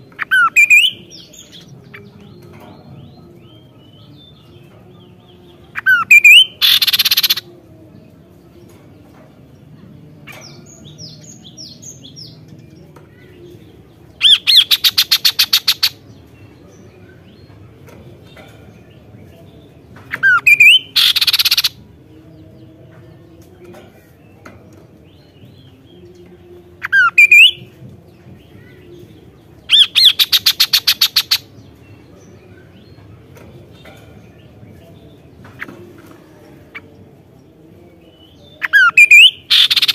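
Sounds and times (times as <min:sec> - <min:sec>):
bird whistles and buzzy rattle: 0:05.8 - 0:07.4, 0:14.2 - 0:16.0, 0:20.2 - 0:21.7, 0:29.7 - 0:31.5, 0:38.7 - 0:39.9.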